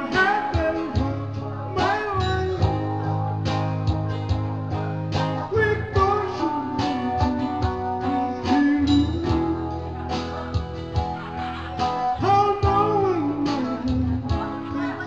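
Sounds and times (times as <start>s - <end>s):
drum beat: 0.0s - 2.9s, 3.5s - 14.7s
man singing: 0.0s - 3.2s, 5.3s - 10.6s, 12.0s - 15.0s
strummed guitar: 0.0s - 15.0s.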